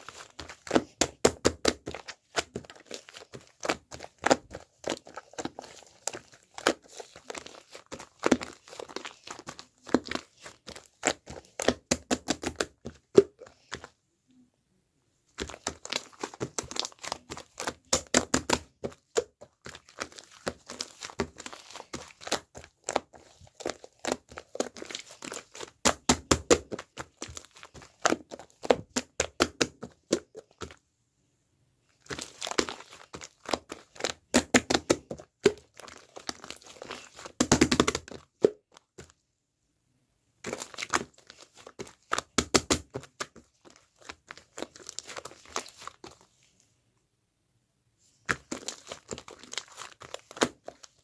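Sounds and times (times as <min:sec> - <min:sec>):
slime squished by hand: 0:15.3 - 0:30.8, 0:32.0 - 0:39.1, 0:40.4 - 0:46.3, 0:48.2 - 0:51.0.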